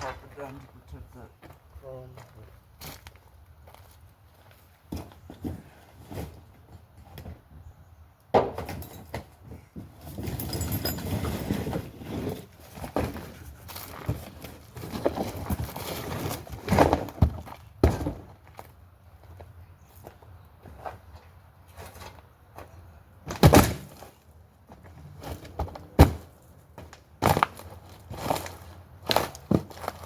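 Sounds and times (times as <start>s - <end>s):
rustling and scraping: 2.8s - 7.4s, 8.8s - 18.8s, 20.6s - 30.0s.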